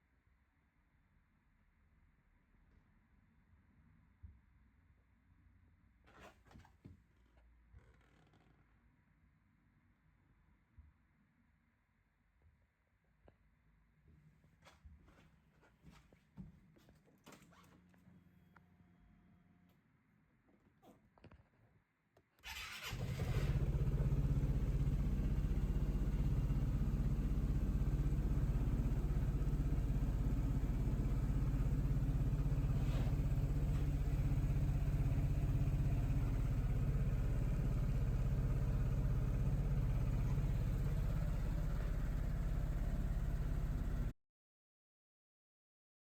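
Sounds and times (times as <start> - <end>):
scooter engine starting and idling: 22.4 - 44.1.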